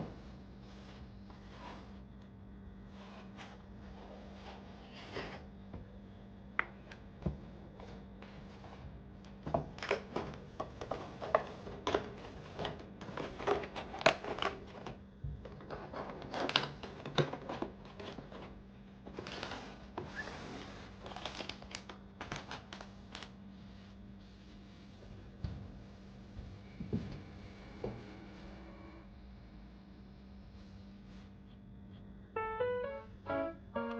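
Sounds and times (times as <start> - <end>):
faint steady hum: 0.0 - 33.9
paper crinkling and rustling: 9.7 - 23.4.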